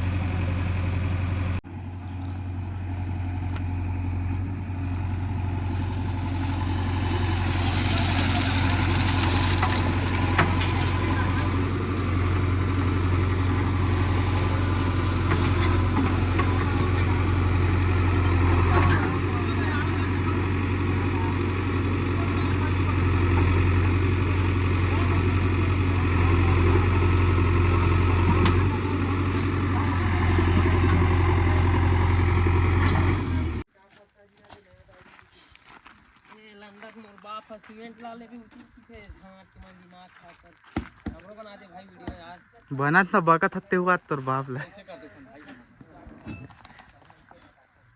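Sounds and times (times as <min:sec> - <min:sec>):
heavy diesel engine running: 0:00.0 - 0:33.7.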